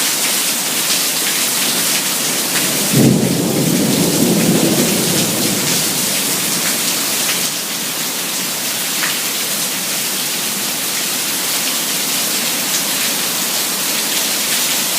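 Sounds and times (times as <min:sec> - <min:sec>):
heavy rain pouring: 0:00.0 - 0:14.9.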